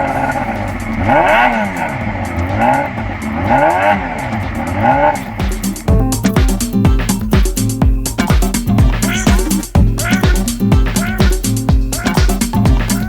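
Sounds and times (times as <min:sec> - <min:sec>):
motorcycle engine revving: 0:00.0 - 0:05.9
music with heavy beat: 0:00.0 - 0:13.0.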